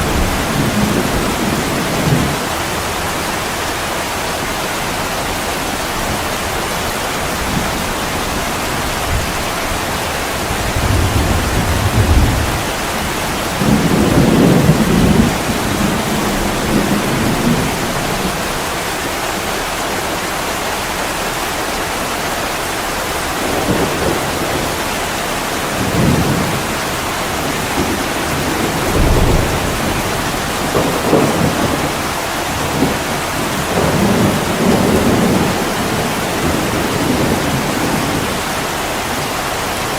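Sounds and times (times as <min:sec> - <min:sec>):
distant thunder rumbling: 0:00.0 - 0:02.5, 0:07.4 - 0:19.3, 0:23.4 - 0:39.0
heavy rain pouring: 0:00.0 - 0:39.9.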